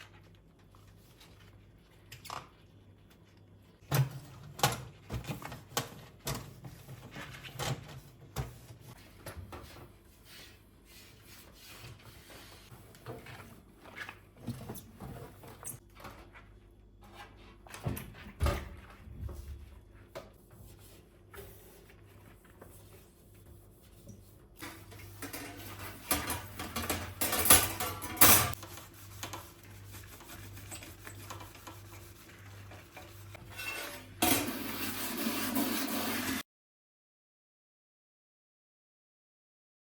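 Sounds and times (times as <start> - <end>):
dishes and cutlery clattering: 24.7 - 28.6.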